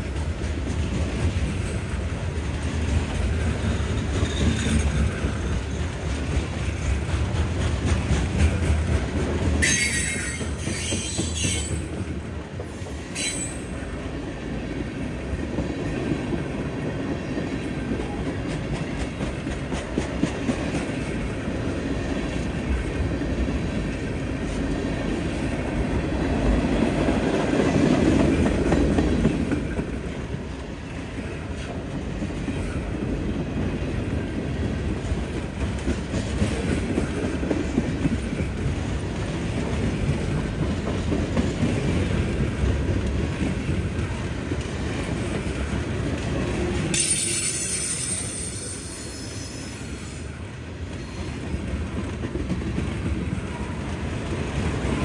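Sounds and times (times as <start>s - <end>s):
freight train wheels clattering: 0.0s - 50.2s
high ringing squeal: 47.0s - 50.3s.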